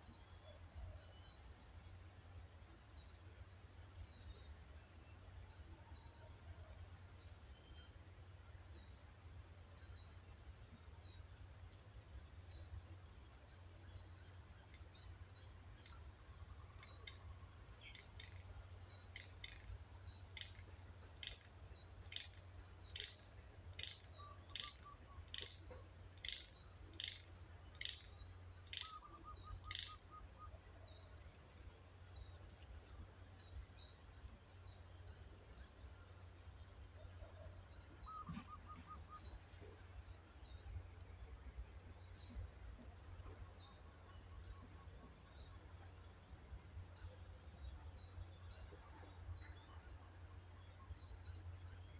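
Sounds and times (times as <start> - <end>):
bird sharp call: 38.0 - 39.3.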